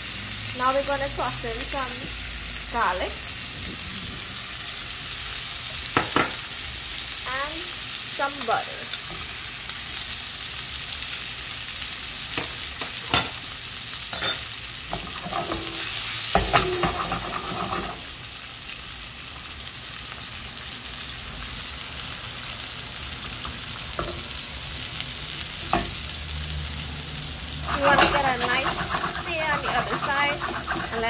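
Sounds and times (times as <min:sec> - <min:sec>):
food sizzling in frying pan: 0:00.0 - 0:31.0.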